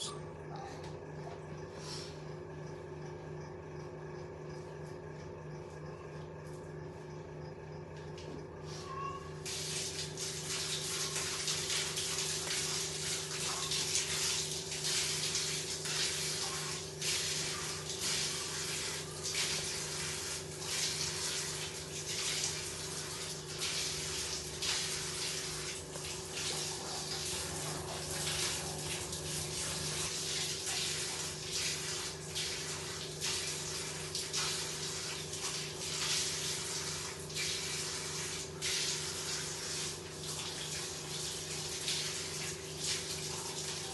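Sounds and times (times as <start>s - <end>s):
water running: 9.2s - 43.9s.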